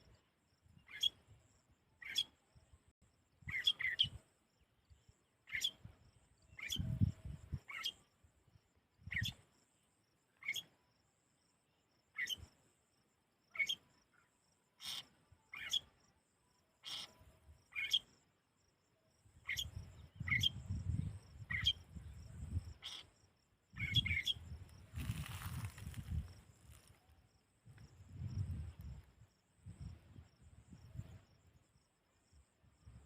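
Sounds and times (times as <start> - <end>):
small bird chirping: 0.0 - 1.4, 2.0 - 2.4, 3.4 - 8.2, 9.0 - 9.6, 10.3 - 10.8, 11.9 - 12.6, 13.5 - 16.1, 16.8 - 18.2, 19.4 - 31.6.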